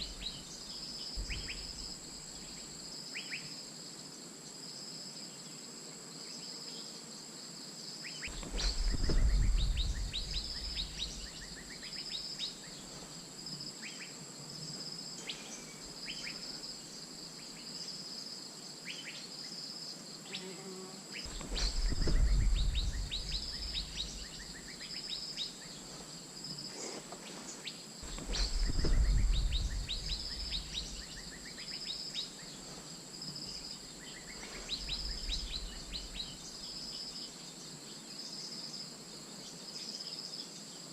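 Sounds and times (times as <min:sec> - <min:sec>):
high insect drone: 0:00.0 - 0:40.9
loud low rumbles: 0:08.3 - 0:11.6, 0:21.3 - 0:24.6, 0:28.0 - 0:31.2.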